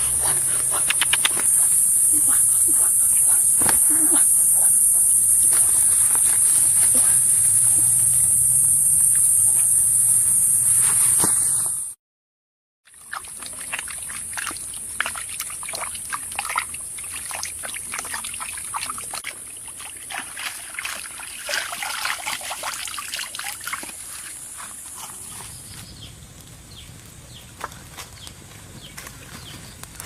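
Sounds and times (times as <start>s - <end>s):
water trickling and splashing: 12.9s - 25.8s.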